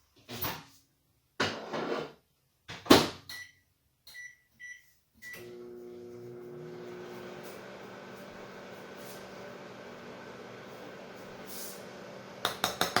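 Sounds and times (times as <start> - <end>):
keypad beeps: 3.3 - 5.4
microwave humming: 5.4 - 12.5.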